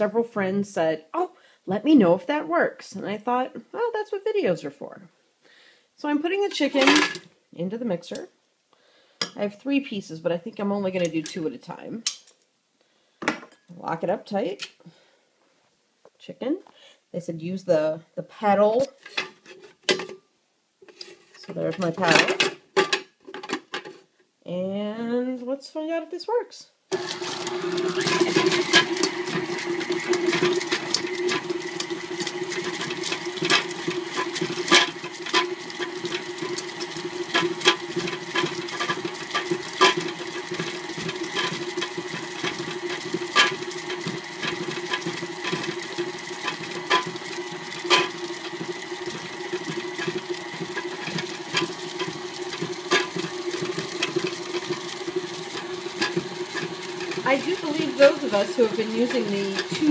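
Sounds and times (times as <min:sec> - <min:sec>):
stand mixer motor hum: 0:26.9 - 0:59.9.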